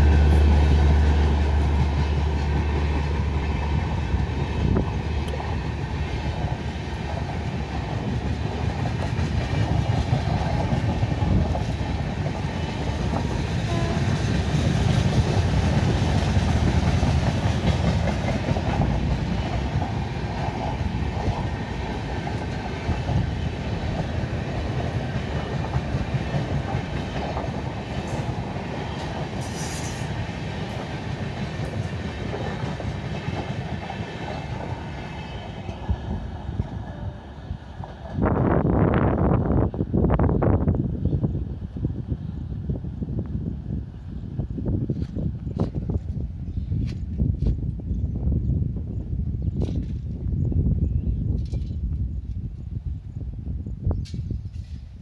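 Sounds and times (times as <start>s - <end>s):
clickety-clack over rail joints: 0.0s - 38.9s, 44.8s - 47.8s, 54.0s - 55.0s
train wheels rumbling on rails: 0.0s - 55.0s.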